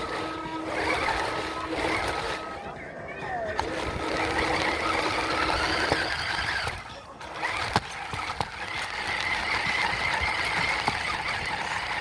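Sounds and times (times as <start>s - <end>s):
toy truck motor whining: 0.0s - 12.0s.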